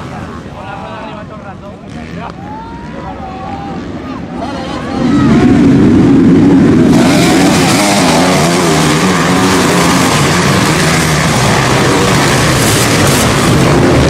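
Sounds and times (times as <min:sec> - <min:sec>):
broad rush of noise: 0:00.0 - 0:14.0
motocross engines revving: 0:00.0 - 0:14.0.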